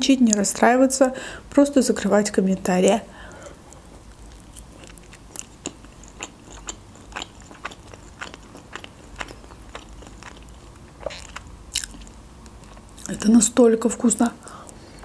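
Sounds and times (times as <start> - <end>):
person chewing food: 3.2 - 13.1, 14.4 - 15.0.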